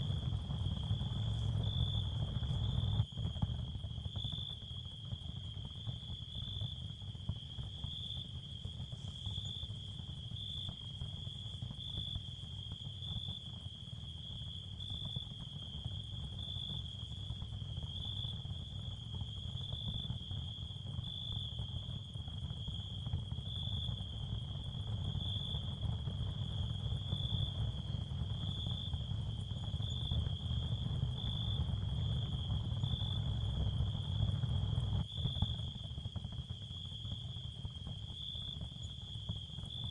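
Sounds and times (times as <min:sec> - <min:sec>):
high cricket-like chirping: 0:00.6 - 0:07.0, 0:19.2 - 0:39.9.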